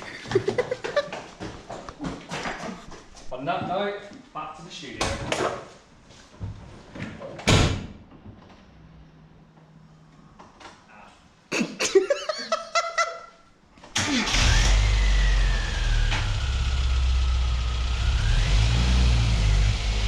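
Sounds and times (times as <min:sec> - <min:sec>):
car engine running: 0:14.4 - 0:20.0.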